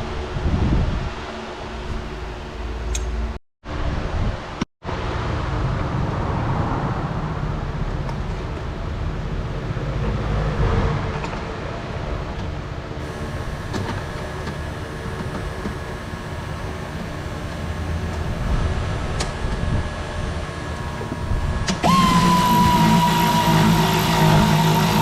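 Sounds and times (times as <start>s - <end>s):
loud high whine: 12.9s - 25.0s
car engine running: 20.0s - 25.0s.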